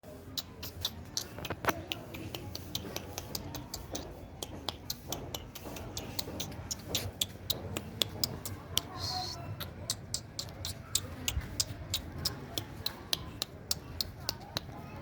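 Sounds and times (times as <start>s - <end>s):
puppy claws clicking on floor: 0.3s - 15.0s.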